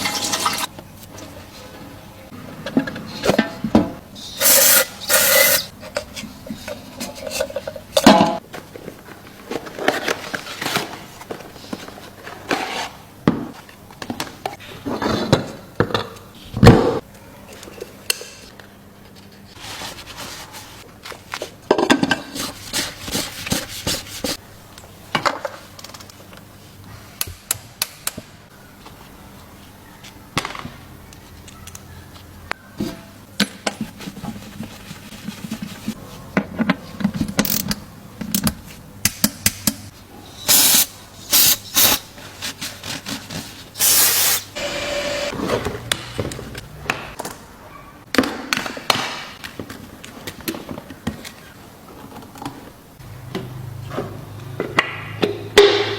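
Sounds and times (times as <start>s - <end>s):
short hissing bursts: 4.4s - 5.7s, 40.5s - 42.1s, 43.8s - 44.6s.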